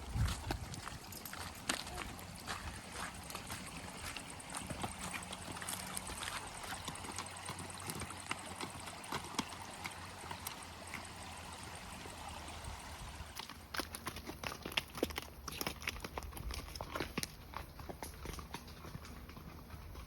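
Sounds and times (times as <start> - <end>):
stream gurgling over stones: 0.0 - 17.2.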